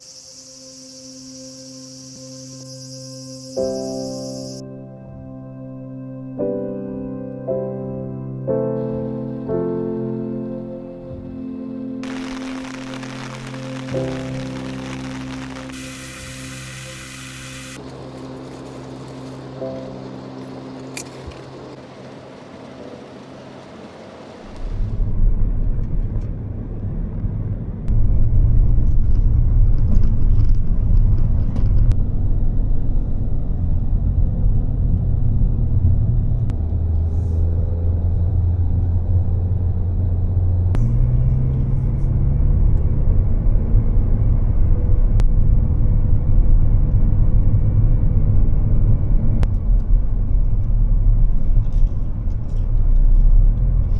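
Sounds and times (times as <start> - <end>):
car road and engine rumble: 8.8 - 53.9.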